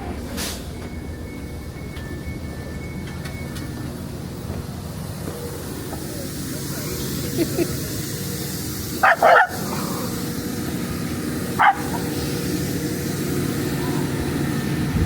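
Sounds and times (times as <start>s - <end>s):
rumble of moving train: 0.0s - 15.0s
dog barking: 9.0s - 9.8s, 11.6s - 12.2s.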